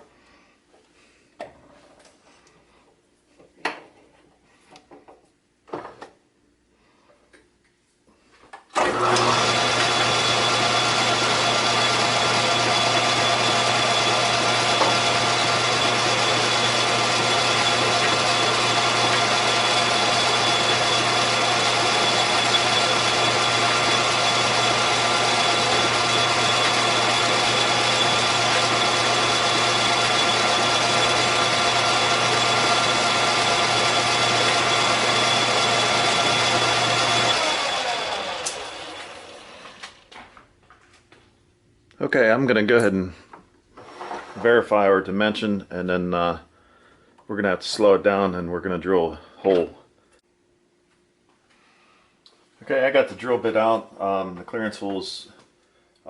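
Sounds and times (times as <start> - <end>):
metal lathe humming and whining: 8.8 - 39.9.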